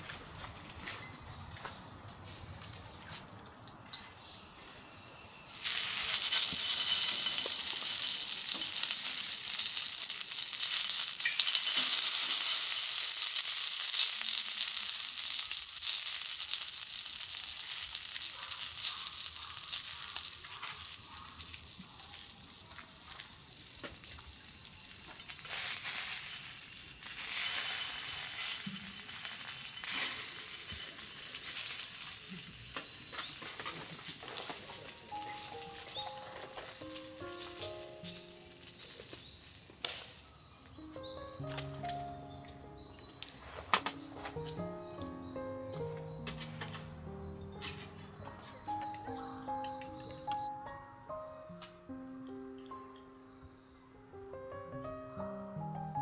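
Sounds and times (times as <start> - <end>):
food sizzling in a pan: 5.5 - 40.6.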